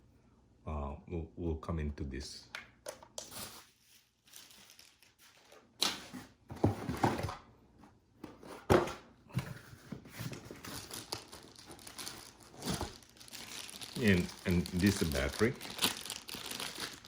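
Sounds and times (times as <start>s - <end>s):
packaging rustling and crinkling: 3.3s - 7.4s, 9.5s - 17.0s.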